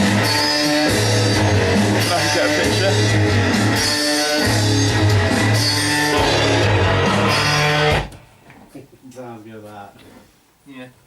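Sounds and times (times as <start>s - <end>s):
heavy rock music: 0.0s - 8.3s.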